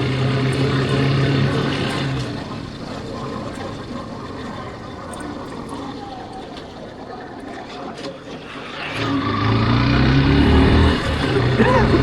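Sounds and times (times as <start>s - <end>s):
motorcycle engine running: 0.0s - 6.4s, 9.0s - 12.0s
wind and road noise: 0.0s - 12.0s.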